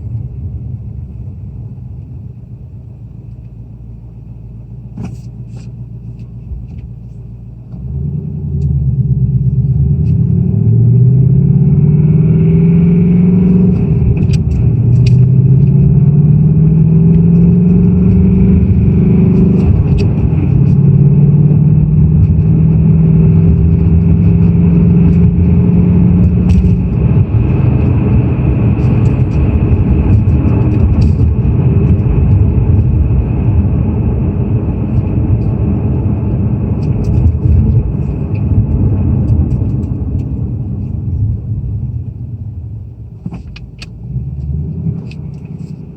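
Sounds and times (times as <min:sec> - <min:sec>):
car engine revving under load: 0:07.6 - 0:45.9.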